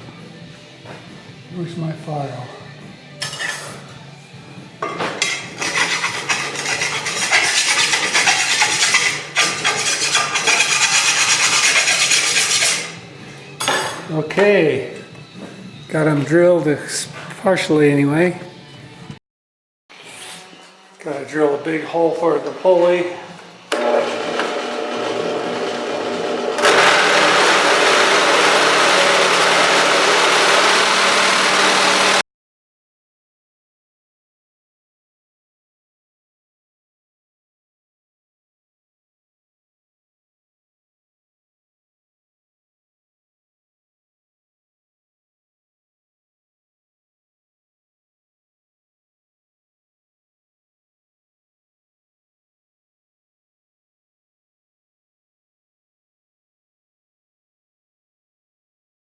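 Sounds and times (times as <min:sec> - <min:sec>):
tool cutting into metal: 0:05.2 - 0:13.0, 0:23.7 - 0:32.2
electric drill boring a hole: 0:23.7 - 0:32.2.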